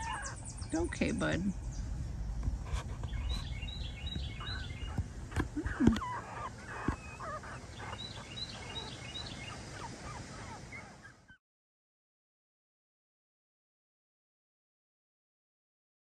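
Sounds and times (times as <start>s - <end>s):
bird chirping: 0.0s - 11.4s.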